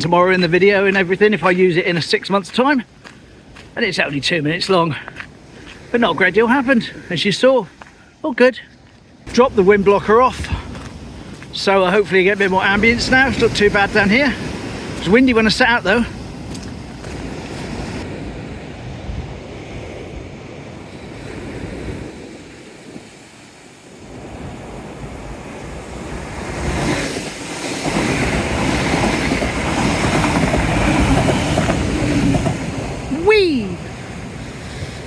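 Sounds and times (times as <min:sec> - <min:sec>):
sea waves washing in: 0:00.1 - 0:08.4, 0:09.1 - 0:35.0
wind buffeting microphone: 0:09.2 - 0:35.0.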